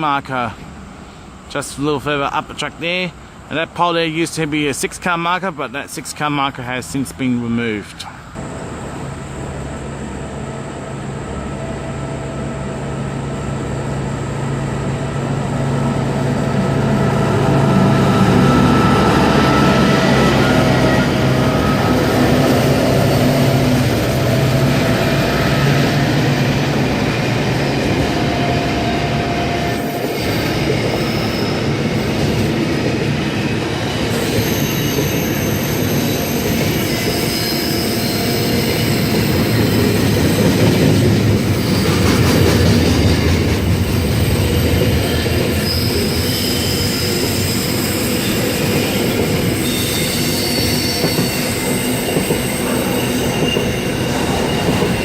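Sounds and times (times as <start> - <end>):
electric train rumbling: 0.0 - 55.0
wheel squeal: 33.8 - 40.5, 44.0 - 55.0.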